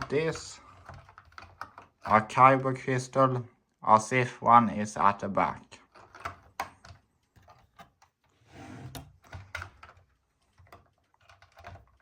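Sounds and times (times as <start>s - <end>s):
plastic toy bricks clicking: 0.0s - 2.4s, 5.9s - 8.1s.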